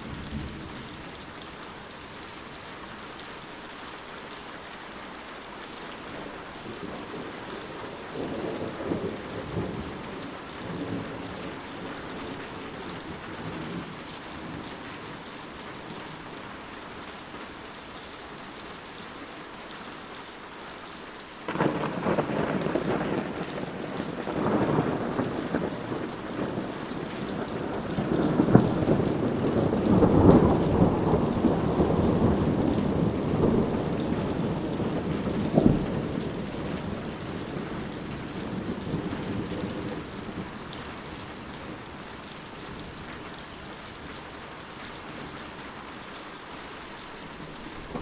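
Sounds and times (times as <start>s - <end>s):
steady rain falling: 0.0s - 48.0s
thunder rumbling and cracking: 6.7s - 14.7s, 21.5s - 42.0s, 47.7s - 48.0s.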